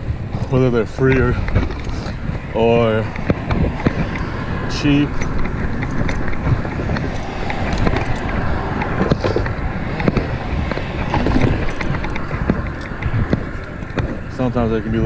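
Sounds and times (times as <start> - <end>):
bicycle road noise rumble: 0.0 - 15.0
wind buffeting microphone: 0.0 - 15.0
small clicks and knocks: 5.0 - 14.6.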